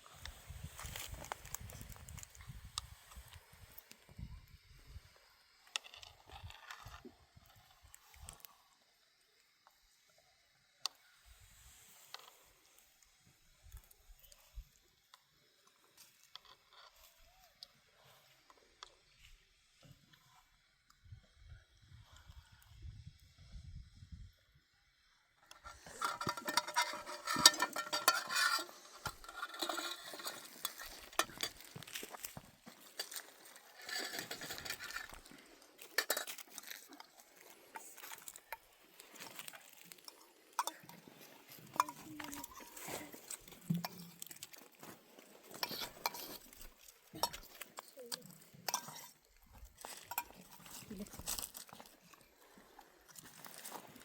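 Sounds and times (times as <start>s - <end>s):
cookware and utensils clattering: 25.6s - 32.0s, 40.0s - 44.3s, 45.5s - 49.2s, 49.8s - 51.5s.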